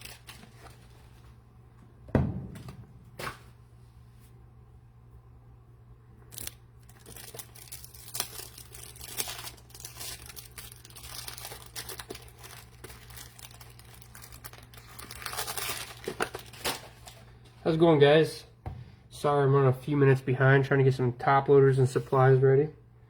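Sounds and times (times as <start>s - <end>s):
packaging crinkling and tearing: 0.0s - 1.4s, 6.2s - 17.4s.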